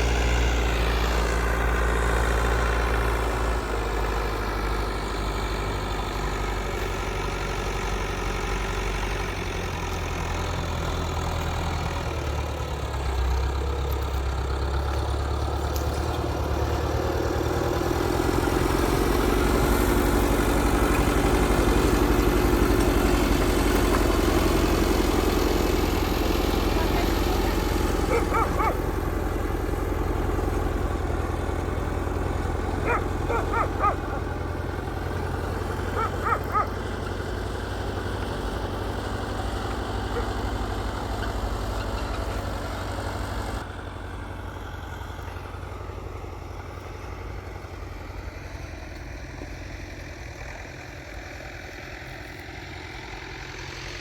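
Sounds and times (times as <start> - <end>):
engine running: 0.0 - 54.0.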